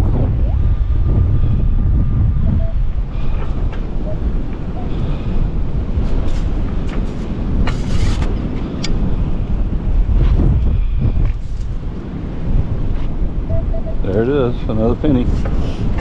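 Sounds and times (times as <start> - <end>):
wind buffeting microphone: 0.0 - 16.0
brief scraping noises: 6.2 - 8.3.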